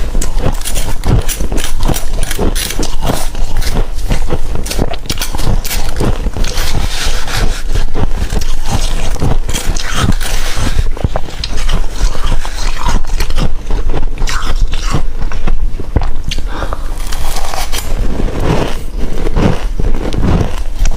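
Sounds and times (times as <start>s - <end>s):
scraping: 0.0s - 13.4s
crunching and chewing: 0.0s - 20.9s.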